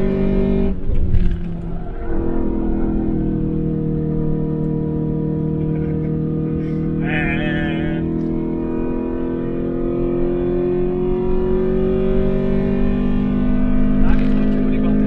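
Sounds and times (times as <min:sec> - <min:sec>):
car engine running hard: 0:00.0 - 0:15.0
high warbling squeal: 0:00.8 - 0:03.8.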